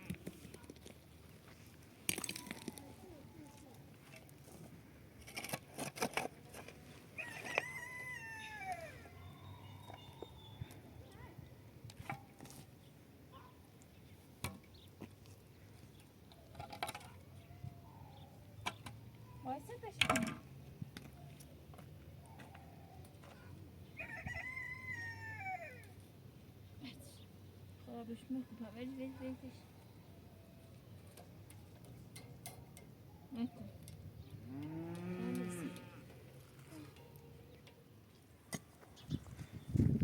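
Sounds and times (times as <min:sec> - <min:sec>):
rooster crowing: 0:07.2 - 0:09.1, 0:24.0 - 0:25.9.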